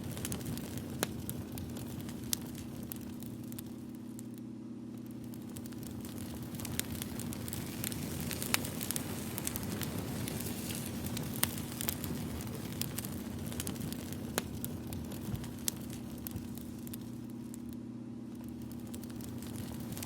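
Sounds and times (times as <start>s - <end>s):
campfire crackling: 0.0s - 20.0s
steady low hum: 0.0s - 20.0s.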